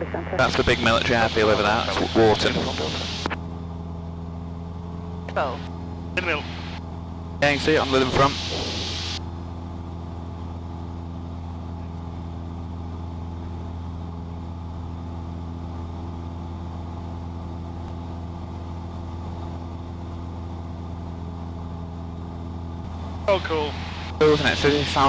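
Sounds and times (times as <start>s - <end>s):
propeller plane engine droning: 0.0s - 25.0s.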